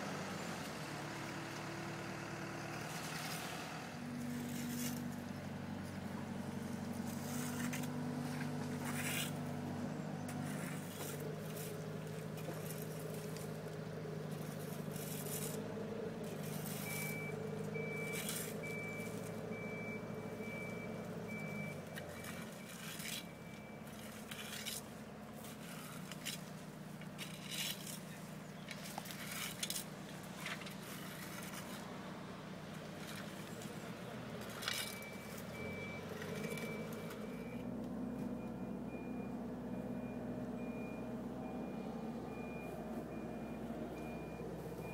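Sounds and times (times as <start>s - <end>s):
heavy vehicle engine running: 0.0s - 44.9s
knocks and scrapes: 4.2s - 6.0s, 6.9s - 19.5s, 21.8s - 32.0s
reversing alarm beeping: 16.5s - 24.9s, 34.5s - 44.9s.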